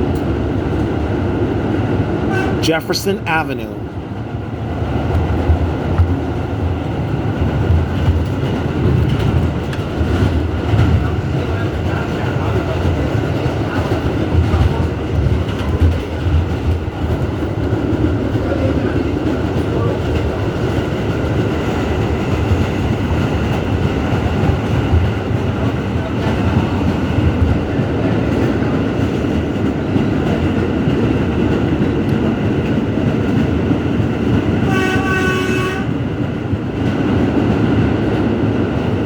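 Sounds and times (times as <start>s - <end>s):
wheels rumbling on rail: 0.0s - 2.7s, 3.7s - 39.0s
train horn blast: 2.3s - 2.6s, 34.6s - 36.0s.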